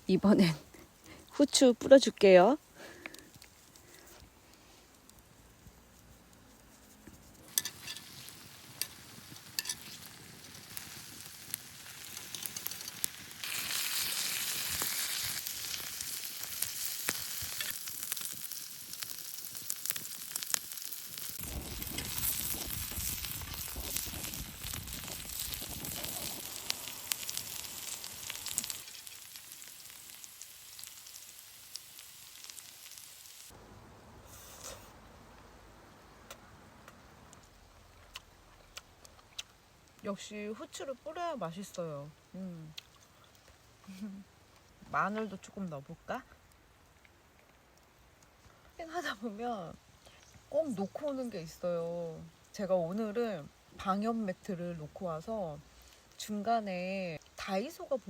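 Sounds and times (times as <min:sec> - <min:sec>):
pork sizzling in a frying pan: 0:07.5 - 0:33.6.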